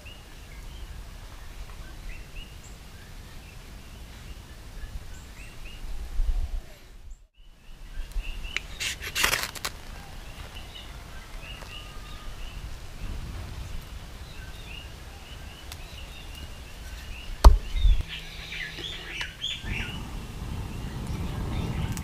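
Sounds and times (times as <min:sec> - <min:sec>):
small birds chirping: 0:00.0 - 0:22.0
sharp knock: 0:17.4 - 0:17.9.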